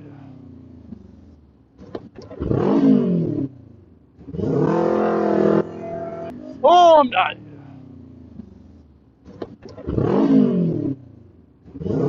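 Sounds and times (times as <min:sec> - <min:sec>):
motorcycle engine revving: 0:02.2 - 0:05.9, 0:09.6 - 0:12.0.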